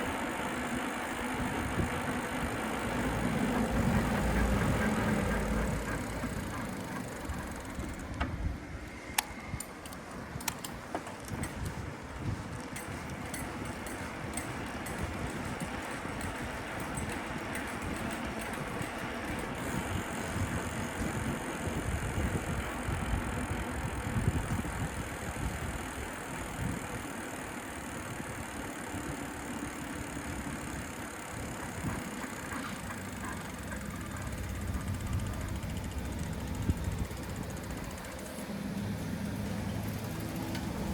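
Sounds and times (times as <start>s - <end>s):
traffic: 0.0s - 40.9s
wind and road rumble on microphone: 1.3s - 27.0s, 34.2s - 38.2s.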